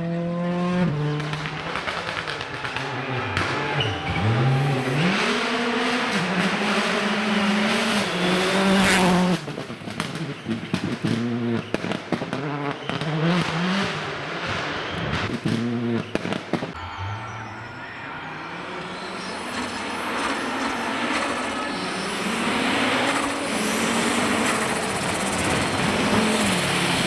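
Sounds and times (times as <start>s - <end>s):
rally car engine revving: 0.0s - 27.0s
exhaust pops and bangs: 9.3s - 14.0s.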